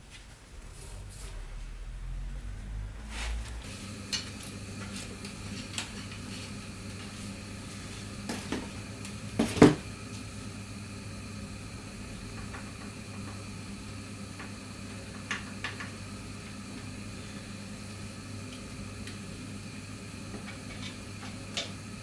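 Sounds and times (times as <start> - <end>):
low steady hum: 0.0 - 12.6.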